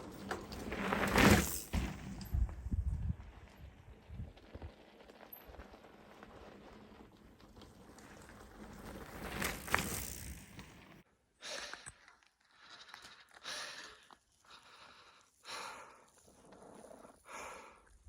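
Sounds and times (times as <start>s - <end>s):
rumbling wind: 1.7s - 4.9s
person breathing hard: 11.4s - 16.2s, 17.1s - 18.0s.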